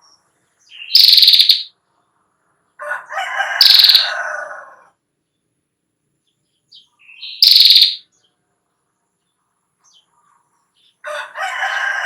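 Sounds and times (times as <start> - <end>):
bird soft chirps: 0.7 - 1.7, 6.7 - 8.0
fast rattling bird trill: 0.8 - 1.7, 3.6 - 4.1, 7.2 - 8.0
rooster crowing: 2.8 - 5.0, 11.0 - 12.0.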